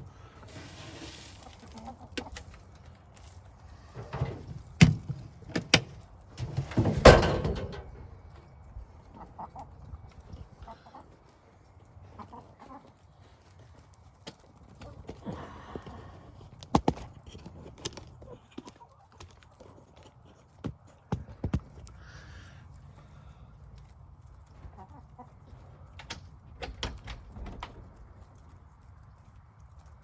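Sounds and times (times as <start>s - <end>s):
chickens clucking: 0.0s - 5.2s, 6.4s - 21.0s, 23.8s - 26.3s.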